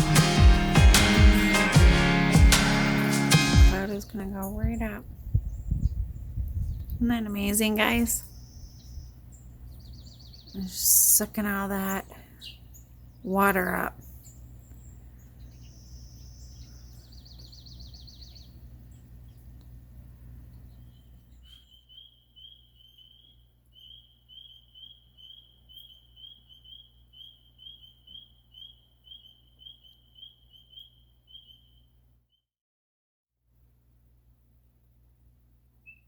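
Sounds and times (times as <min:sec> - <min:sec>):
bird trills: 0:08.2 - 0:10.6, 0:14.2 - 0:18.6, 0:20.6 - 0:32.0
short bird chirps: 0:20.8 - 0:31.9.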